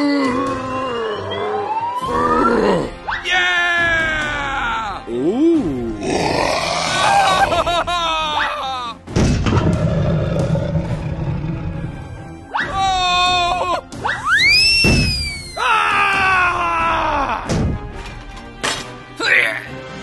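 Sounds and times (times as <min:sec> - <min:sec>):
background music: 0:00.0 - 0:20.0
rising and falling whistle: 0:00.4 - 0:02.6, 0:14.1 - 0:15.6.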